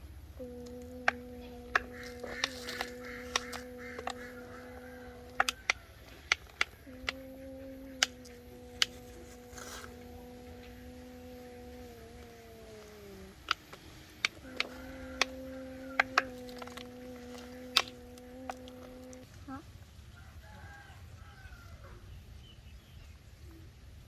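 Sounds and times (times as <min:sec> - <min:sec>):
small motor humming: 0:00.0 - 0:19.2
sharp clicks and ticks: 0:00.4 - 0:19.2.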